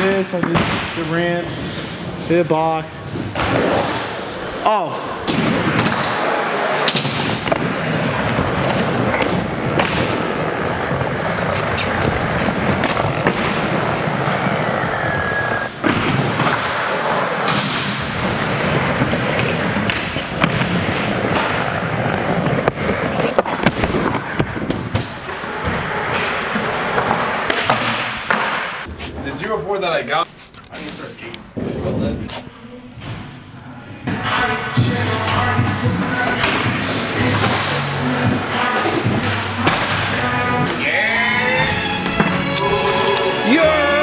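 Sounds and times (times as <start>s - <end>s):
skateboard wheels rolling: 0.0s - 44.0s
skateboard clacks and thuds: 5.2s - 29.2s, 34.0s - 40.8s.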